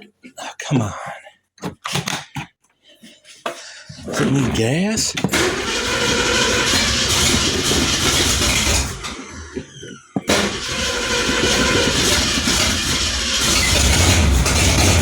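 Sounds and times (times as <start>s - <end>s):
car engine restarting and running: 5.3s - 15.0s.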